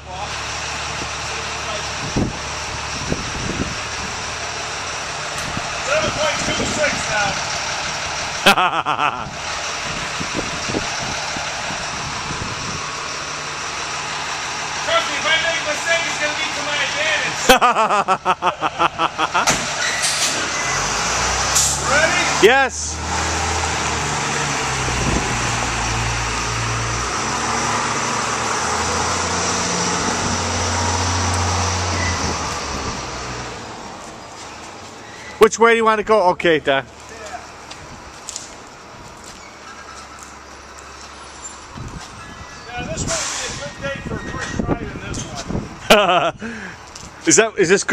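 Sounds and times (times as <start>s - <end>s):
wind noise on microphone: 2.0s - 4.3s, 5.4s - 8.4s, 9.2s - 13.1s, 24.7s - 26.7s, 29.8s - 33.5s, 41.7s - 46.4s
low engine hum: 9.1s - 35.0s.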